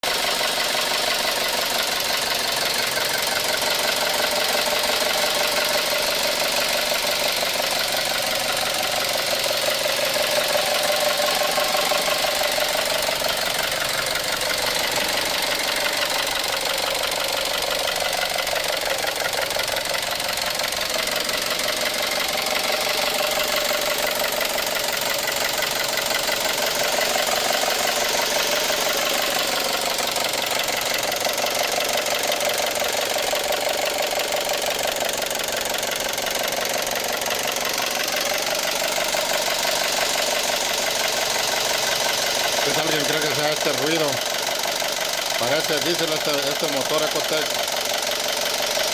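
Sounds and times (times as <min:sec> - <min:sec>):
car engine with rapid clatter: 0:00.0 - 0:48.9.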